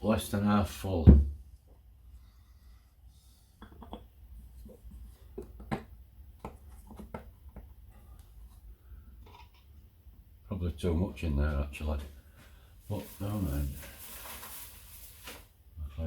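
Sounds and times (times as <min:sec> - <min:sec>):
light clicks and knocks handling pot: 0:03.6 - 0:08.6.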